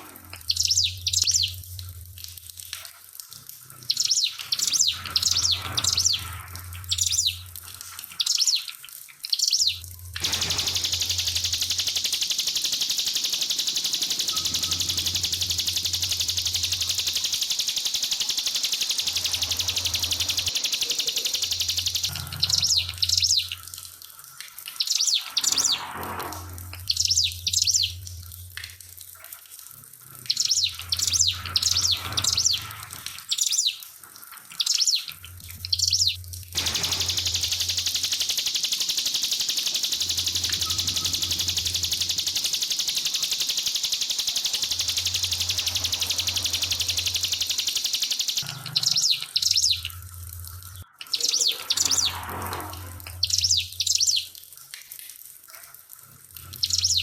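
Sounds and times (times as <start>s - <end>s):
trickling water: 0.0s - 57.0s
bird chirping: 0.2s - 1.7s, 3.9s - 7.5s, 8.1s - 23.6s, 24.8s - 25.9s, 26.8s - 28.0s, 30.3s - 33.8s, 34.5s - 52.3s, 53.0s - 54.3s, 56.6s - 57.0s
bird buzzing trill: 10.2s - 23.5s, 35.9s - 50.0s, 51.5s - 54.2s.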